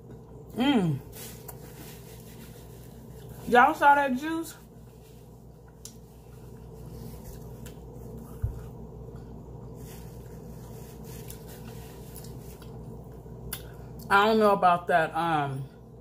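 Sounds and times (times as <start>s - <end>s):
person chewing: 5.6s - 14.1s.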